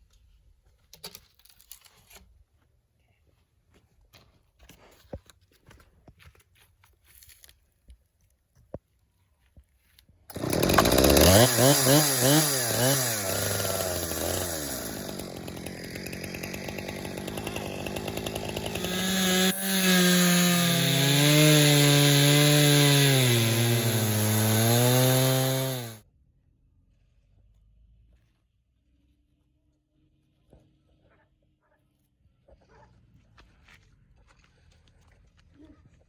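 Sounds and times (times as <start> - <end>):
chainsaw ripping along log: 10.3 - 26.0.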